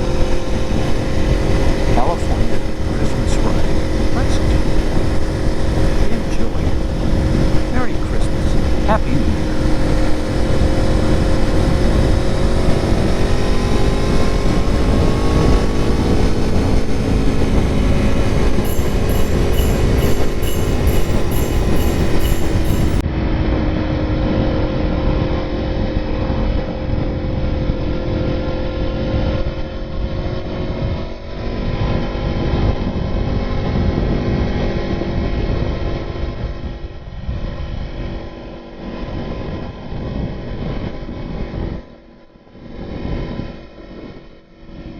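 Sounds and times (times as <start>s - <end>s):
motorcycle engine revving: 0.0s - 23.0s
wind rush on microphone: 0.0s - 23.0s, 25.2s - 44.9s.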